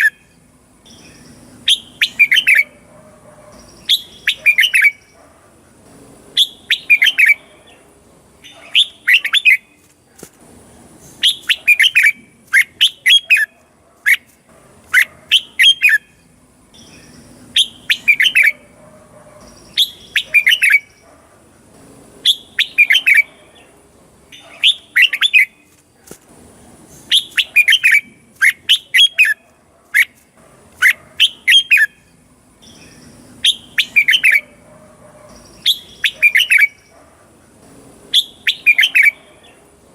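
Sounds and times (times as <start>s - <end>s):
bird singing whistled notes: 0.0s - 2.8s, 3.5s - 5.2s, 6.4s - 7.6s, 11.1s - 13.5s, 15.0s - 18.6s, 19.4s - 21.0s, 22.2s - 23.4s, 27.0s - 29.4s, 30.8s - 34.5s, 35.3s - 36.9s, 38.1s - 39.3s.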